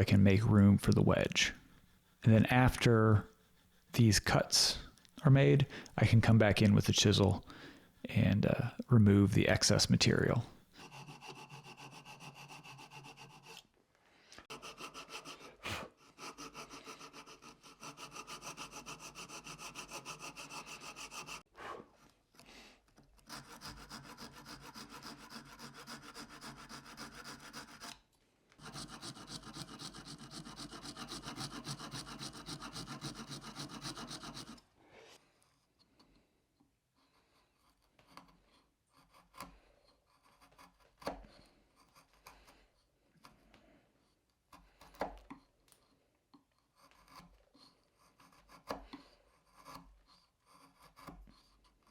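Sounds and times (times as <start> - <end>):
hand saw cutting wood: 9.7 - 13.7, 14.4 - 34.7, 37.2 - 43.4, 46.6 - 51.9.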